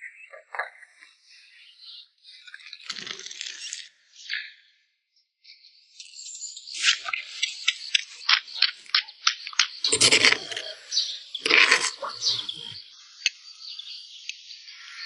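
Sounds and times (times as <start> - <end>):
bird chirps: 6.0 - 15.0
harsh bird calls: 6.8 - 13.9.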